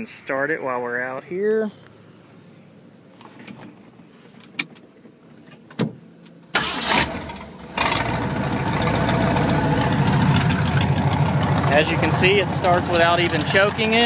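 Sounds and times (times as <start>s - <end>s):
car engine cranking and idling: 4.4s - 14.0s.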